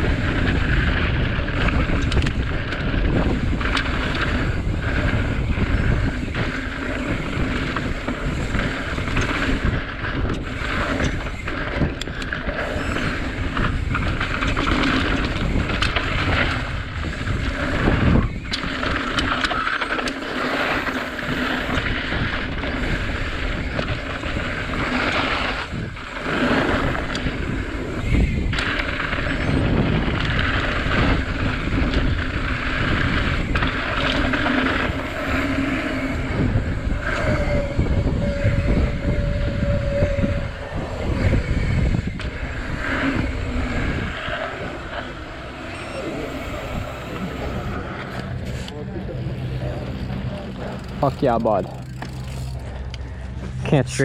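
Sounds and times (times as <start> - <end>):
bike tyre rumble: 0.0 - 54.0
wind on microphone: 0.0 - 54.0
bike knocks and rattles: 49.5 - 53.6.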